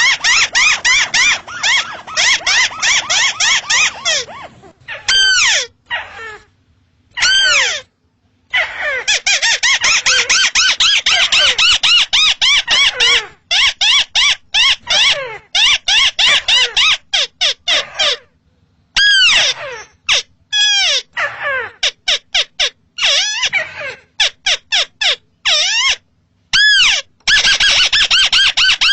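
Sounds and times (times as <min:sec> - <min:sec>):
crake calling: 0:00.0 - 0:06.4.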